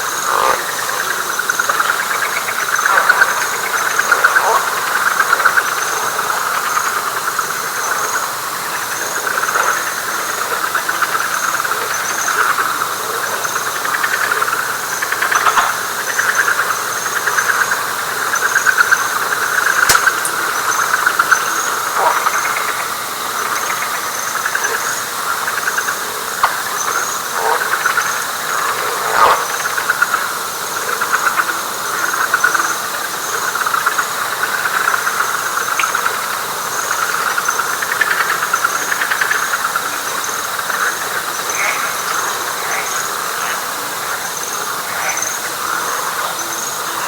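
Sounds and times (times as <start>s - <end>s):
frogs trilling: 0.0s - 47.0s
sharp click: 19.9s - 20.6s.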